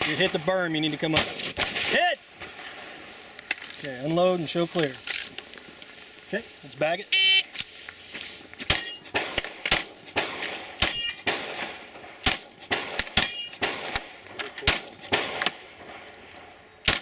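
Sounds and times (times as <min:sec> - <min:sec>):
rifle shots: 0:00.0 - 0:02.8, 0:08.7 - 0:16.0
steel targets ringing: 0:08.7 - 0:09.2, 0:10.8 - 0:12.2, 0:13.2 - 0:14.2.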